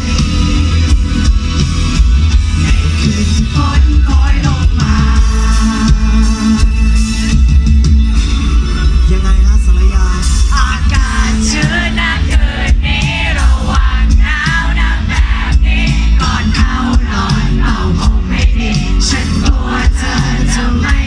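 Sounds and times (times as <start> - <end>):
pop-rock band playing: 0.0 - 21.0
person singing: 2.6 - 6.8, 10.5 - 21.0.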